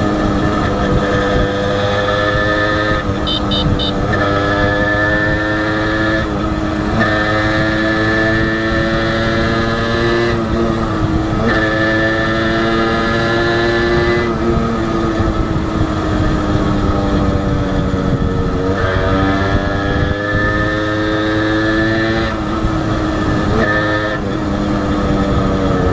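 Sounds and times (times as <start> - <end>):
two-stroke motorcycle engine running: 0.0 - 9.8
short high beeps: 3.2 - 4.0.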